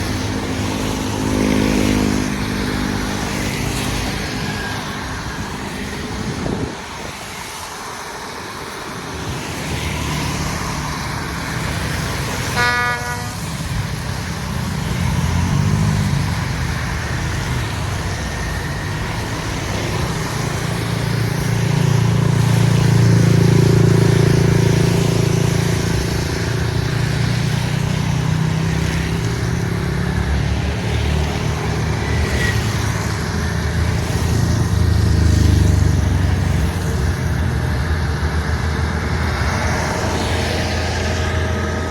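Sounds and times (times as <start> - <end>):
diesel locomotive engine running: 0.0 - 41.9
train horn toot: 12.4 - 13.8.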